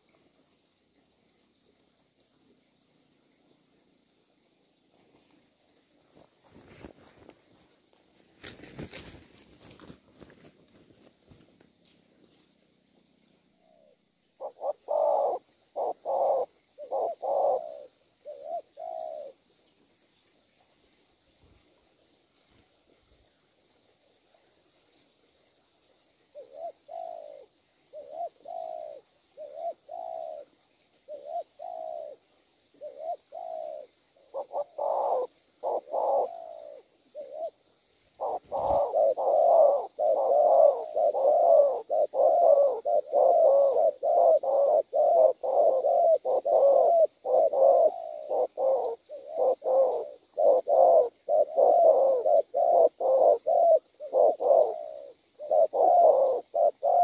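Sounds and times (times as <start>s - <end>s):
dove cooing: 13.5s - 19.5s, 26.3s - 57.0s.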